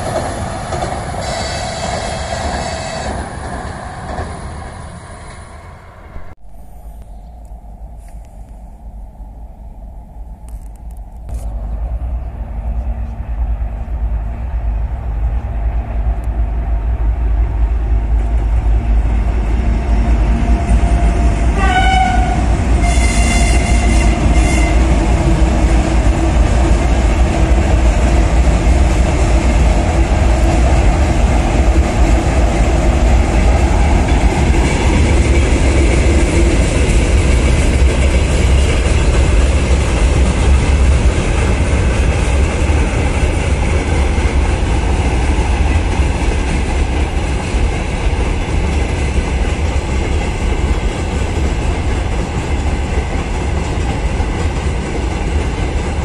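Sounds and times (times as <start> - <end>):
freight train rumbling on bridge: 0.0 - 56.0
locomotive horn blasts: 21.6 - 25.0.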